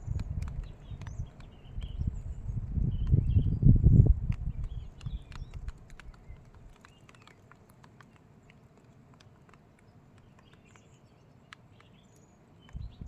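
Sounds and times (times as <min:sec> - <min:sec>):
soft clicks: 0:04.3 - 0:12.9
distant bird chirps: 0:09.6 - 0:13.0.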